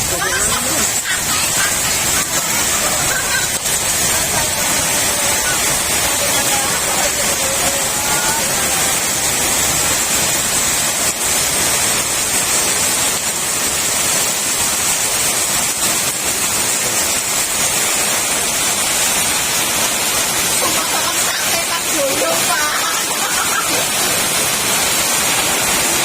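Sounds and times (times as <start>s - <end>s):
heavy rain: 0.0s - 26.0s.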